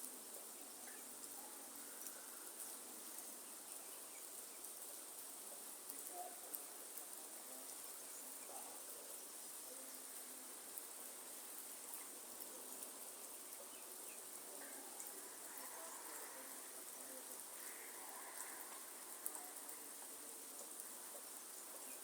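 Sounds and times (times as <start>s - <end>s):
light rain falling: 0.0s - 22.0s.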